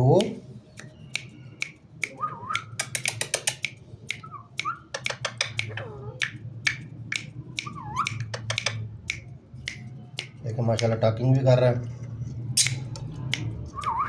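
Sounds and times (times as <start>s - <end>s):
rapid sharp clicks: 0.2s - 11.2s
parrot whistled calls: 0.8s - 2.9s, 4.1s - 5.9s, 7.6s - 8.8s, 12.6s - 12.9s, 13.7s - 14.0s.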